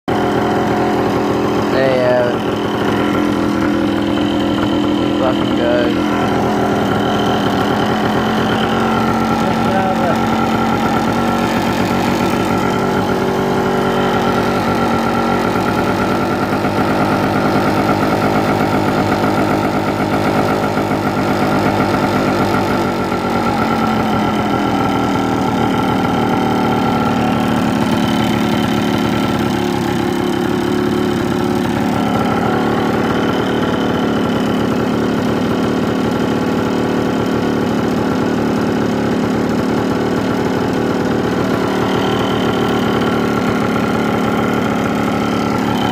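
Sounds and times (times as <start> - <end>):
two-stroke engine idling: 0.1 - 45.9.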